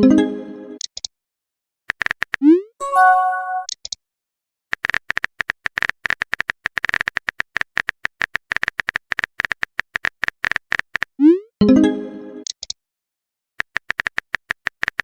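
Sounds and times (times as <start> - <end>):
short chime tone: 2.8 - 3.7.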